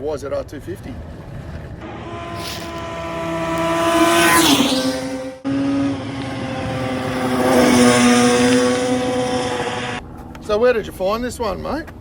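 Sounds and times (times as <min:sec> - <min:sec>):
motorcycle passing at high revs: 0:01.8 - 0:10.0.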